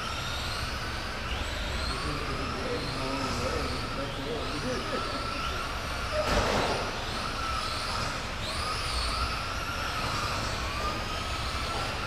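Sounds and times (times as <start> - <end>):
rc truck motors whining: 0.0 - 12.0.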